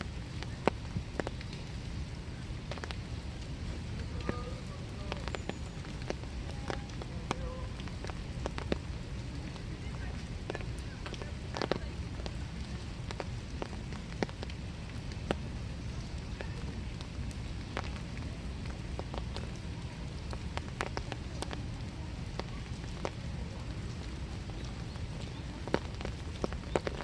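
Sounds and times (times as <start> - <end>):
sharp raindrops ticking: 0.0 - 27.0
steady rain falling: 0.0 - 27.0.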